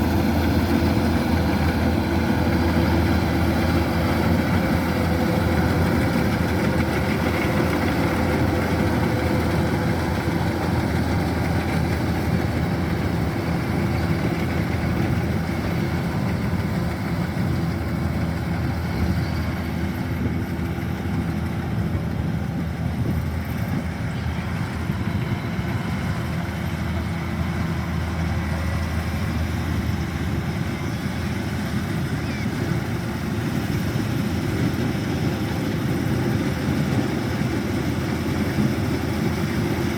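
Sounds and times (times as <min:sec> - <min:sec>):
combine harvester diesel engine: 0:00.0 - 0:39.9.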